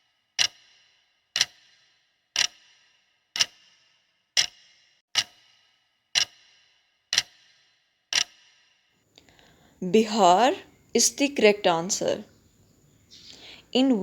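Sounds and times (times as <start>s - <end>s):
clock ticks with metallic ring: 0.0s - 8.7s.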